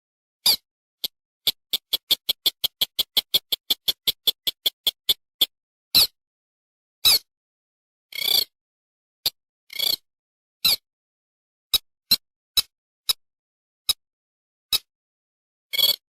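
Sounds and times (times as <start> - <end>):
rail bird calling: 1.5 - 5.2.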